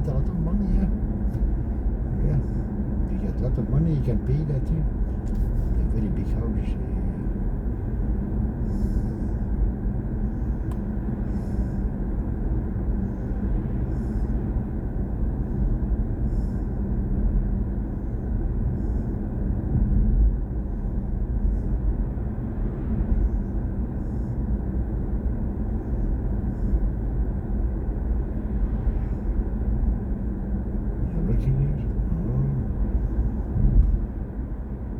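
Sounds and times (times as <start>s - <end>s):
road and tyre rumble: 0.0s - 34.9s.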